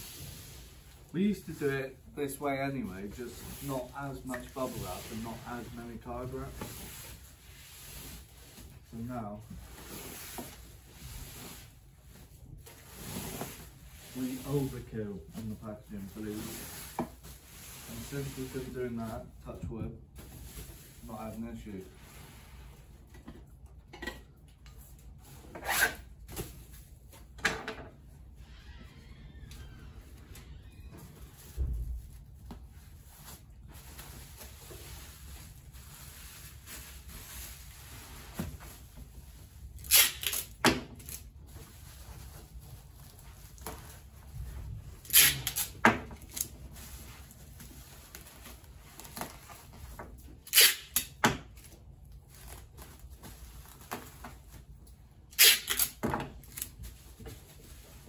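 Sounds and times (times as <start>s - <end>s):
bubble wrap rasping: 0.0s - 19.4s, 29.6s - 58.0s.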